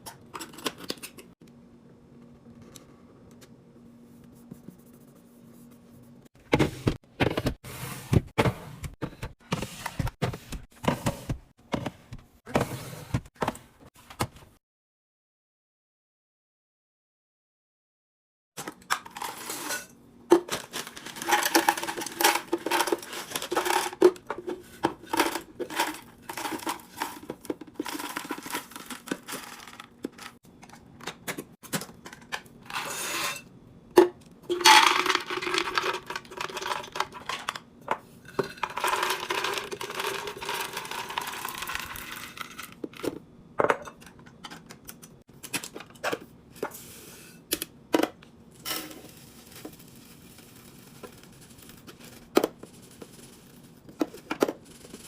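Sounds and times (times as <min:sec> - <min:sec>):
containers clinking and knocking: 0:18.6 - 0:30.4, 0:34.0 - 0:44.6.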